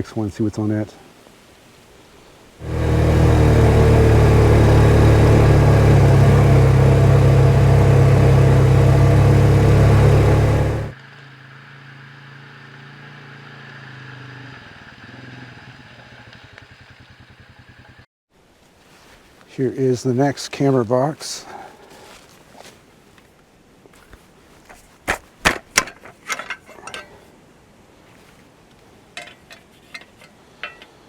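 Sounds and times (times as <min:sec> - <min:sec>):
faint engine hum: 0:02.6 - 0:18.0
small vehicle engine running: 0:02.6 - 0:18.1.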